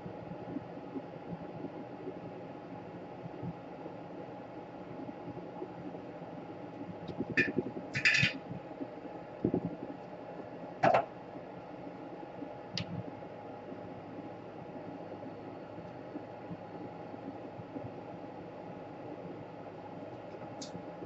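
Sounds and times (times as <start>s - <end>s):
steady fan-like hum: 0.0s - 21.0s
small tools clicking and tapping: 7.1s - 8.4s.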